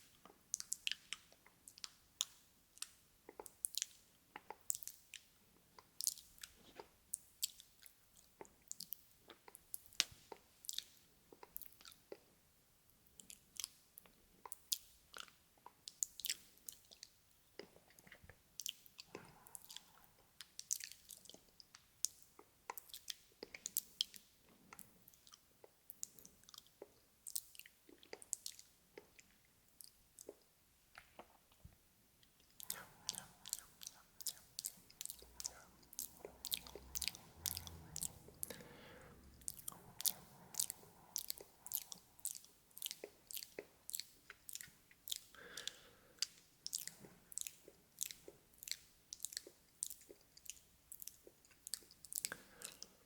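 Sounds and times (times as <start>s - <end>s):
wet mouth clicks and smacks: 0.2s - 12.2s, 13.2s - 52.9s.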